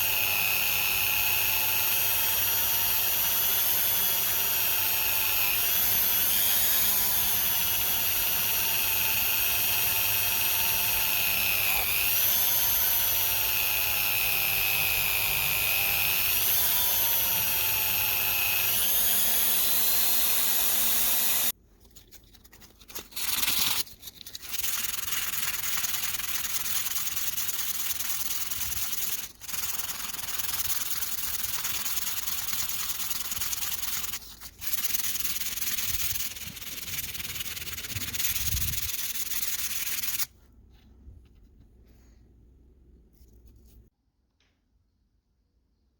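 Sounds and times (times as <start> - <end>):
small power tool whining: 0.0 - 21.6
hand sanding: 17.7 - 40.3.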